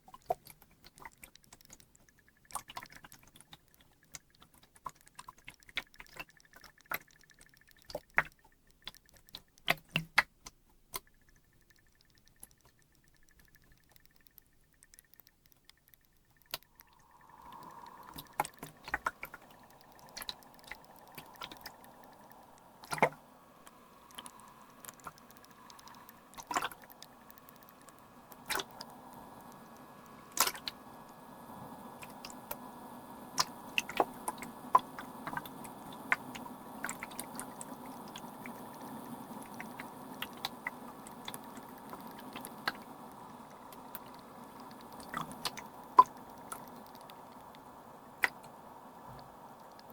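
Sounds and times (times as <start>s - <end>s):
water drips and pops: 0.0s - 49.9s
humidifier watery hiss: 15.8s - 49.9s.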